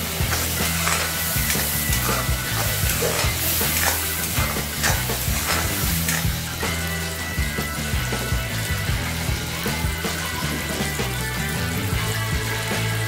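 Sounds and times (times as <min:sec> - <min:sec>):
metal spoon scraping a pan: 0:00.0 - 0:06.5
vegetables sizzling in oil: 0:00.0 - 0:13.0.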